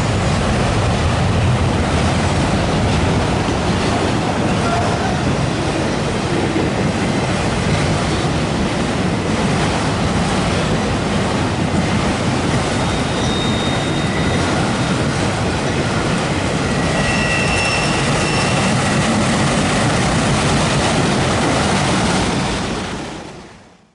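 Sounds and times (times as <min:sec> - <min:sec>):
freight cars rumbling and clattering: 0:00.0 - 0:23.3
faint wheel squeals: 0:12.8 - 0:14.6, 0:16.8 - 0:18.9.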